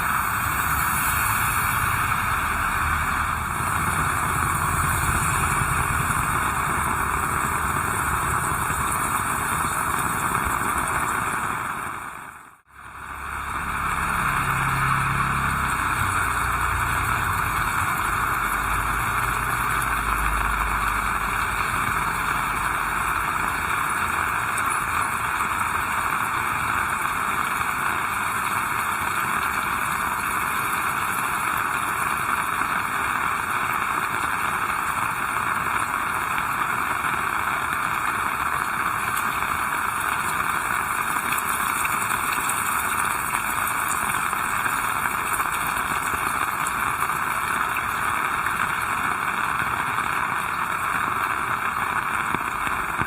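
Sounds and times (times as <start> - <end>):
heavy rain falling: 0.0 - 53.0
low rumble of passing vehicle: 12.7 - 22.9.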